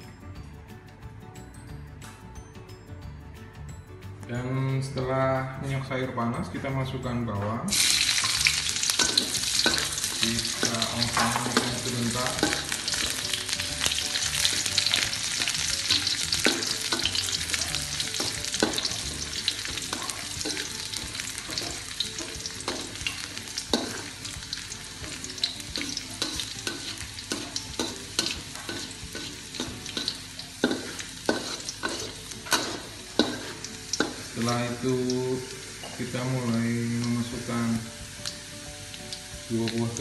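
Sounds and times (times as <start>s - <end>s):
shallots sizzling in hot oil: 7.7s - 40.0s
metal spatula scraping wok: 7.8s - 24.2s, 25.0s - 34.4s.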